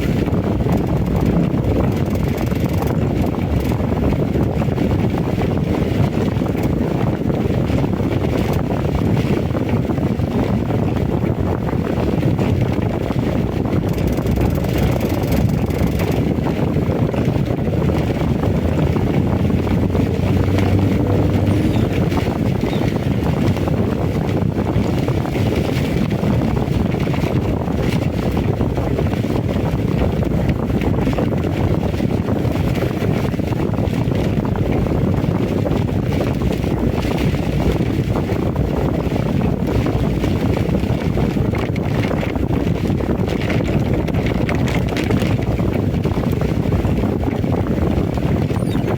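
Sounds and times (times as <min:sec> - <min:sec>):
wind rumble on microphone: 0:00.0 - 0:48.9
heavy rain: 0:11.9 - 0:35.6.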